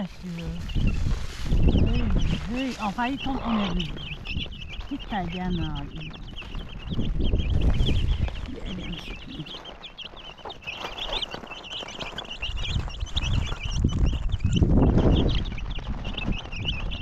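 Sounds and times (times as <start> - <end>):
low rumbling: 0.0 - 10.4, 11.0 - 17.0
chicks chirping: 0.0 - 17.0.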